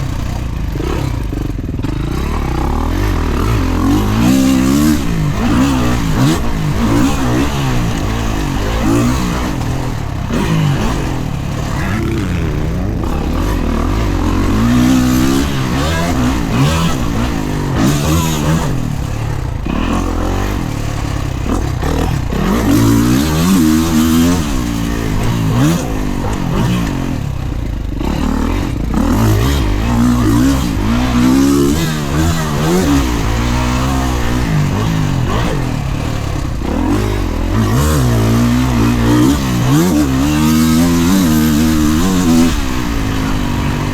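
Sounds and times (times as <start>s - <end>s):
motocross bike engine revving: 0.0s - 43.9s.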